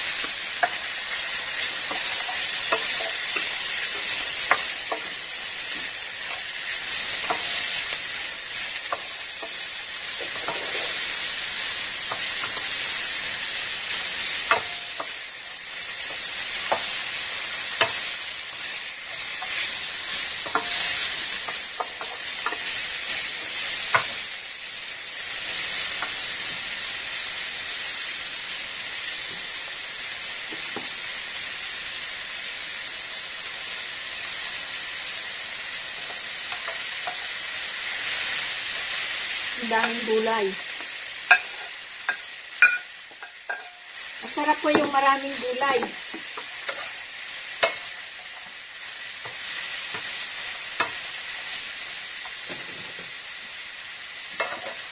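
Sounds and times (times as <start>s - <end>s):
food sizzling in hot oil: 0.0s - 54.9s
spatula tapping pan: 14.3s - 15.2s, 20.3s - 22.8s, 40.8s - 43.8s, 47.6s - 47.9s.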